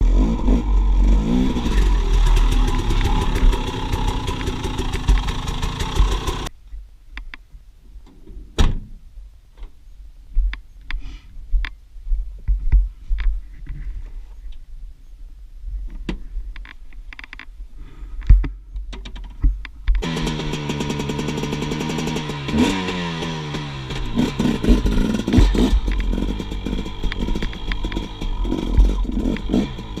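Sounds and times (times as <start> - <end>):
dirt bike engine revving: 0.0 - 6.5, 20.0 - 30.0
low rumble: 0.0 - 6.5.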